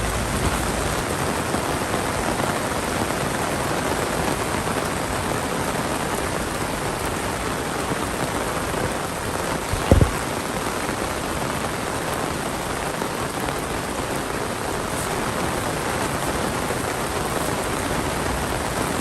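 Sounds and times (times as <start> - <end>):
heavy rain falling: 0.0 - 19.0
low thump: 9.8 - 10.2.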